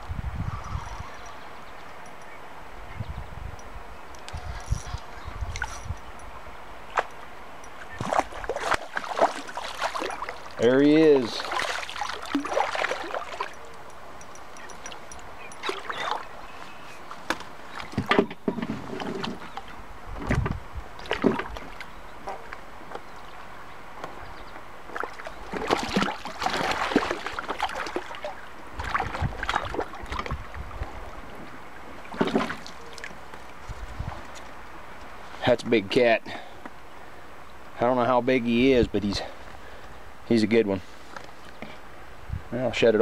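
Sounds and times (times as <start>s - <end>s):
water splashing and sloshing: 4.1s - 35.4s.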